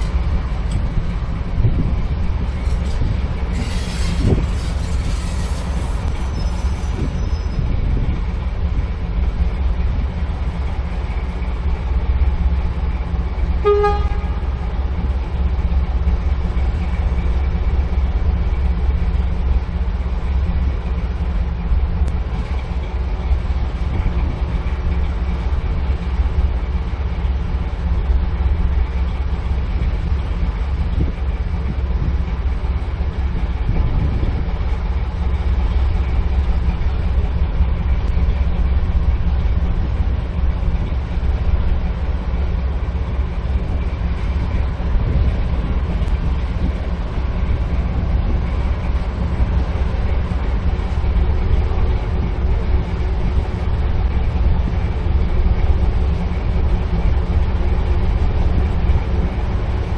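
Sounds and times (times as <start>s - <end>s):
locomotive engine running: 0.0s - 59.9s
short horn toot: 13.6s - 14.5s.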